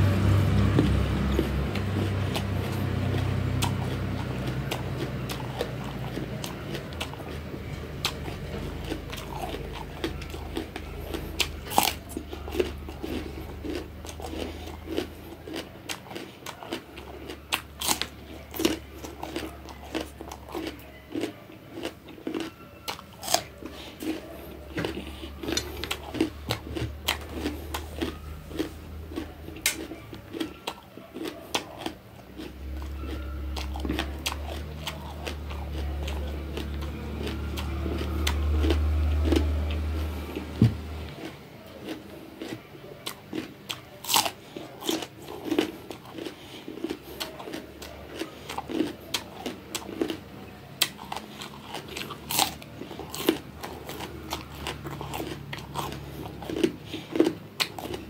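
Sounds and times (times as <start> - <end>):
person chewing crunchy vegetable: 0.0 - 58.0.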